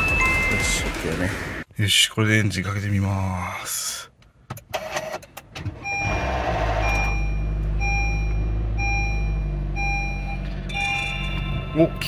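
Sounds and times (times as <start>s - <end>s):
car engine cranking and idling: 4.1s - 12.0s
warning chime beeps: 5.9s - 12.0s.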